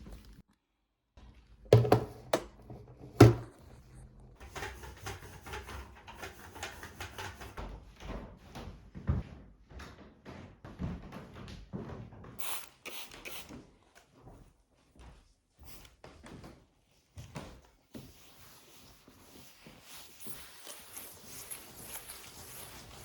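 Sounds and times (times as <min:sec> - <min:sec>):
household objects knocking: 0:01.7 - 0:03.6.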